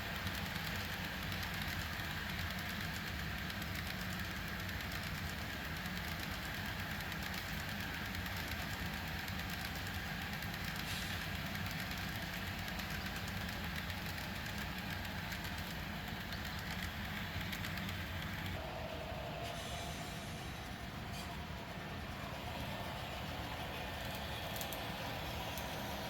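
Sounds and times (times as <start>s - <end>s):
diesel engine drone: 9.6s - 26.0s.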